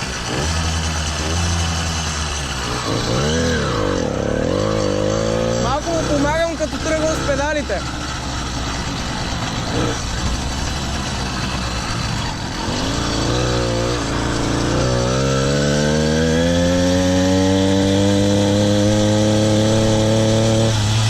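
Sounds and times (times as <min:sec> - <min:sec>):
road and wind rumble: 0:00.0 - 0:21.0
small engine revving up: 0:00.0 - 0:21.0.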